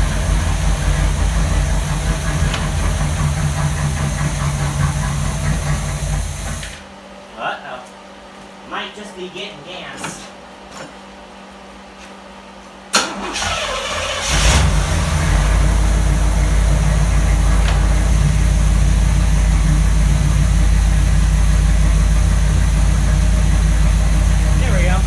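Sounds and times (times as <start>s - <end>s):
car engine cranking and idling: 0.0s - 6.6s, 13.2s - 25.0s
ignition click: 17.7s - 18.1s.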